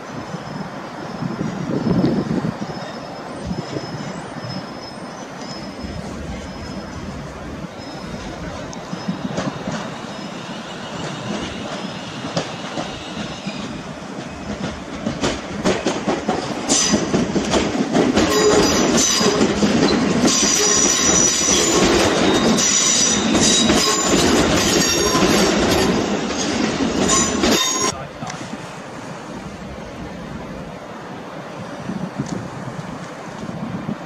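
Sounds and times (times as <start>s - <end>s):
high-pitched brake squeals: 0.0s - 14.5s, 18.3s - 28.0s
train running noise: 0.0s - 34.0s
train wheels clicking over joints: 3.5s - 28.4s.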